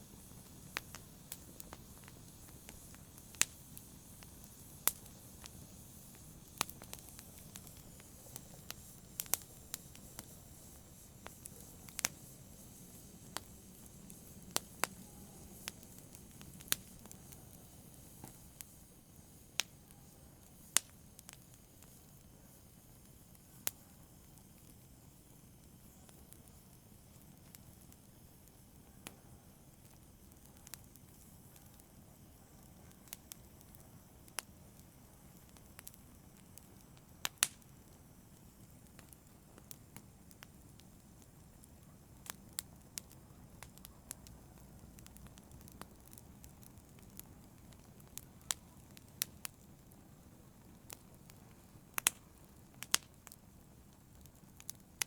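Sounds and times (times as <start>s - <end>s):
fire pops and snaps: 0.0s - 19.8s, 20.5s - 22.3s, 22.9s - 55.0s
low fire hiss: 0.0s - 55.0s.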